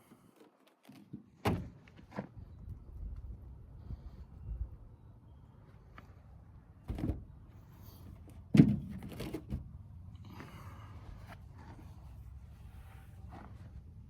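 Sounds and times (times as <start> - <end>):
knocks and thuds: 6.9 - 7.3, 8.5 - 9.7.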